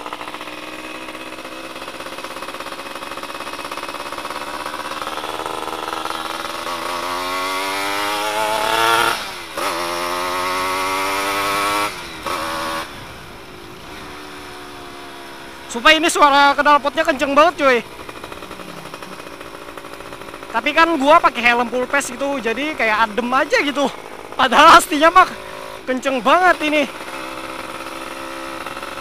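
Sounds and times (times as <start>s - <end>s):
loud two-stroke engine revving: 0.0s - 29.0s.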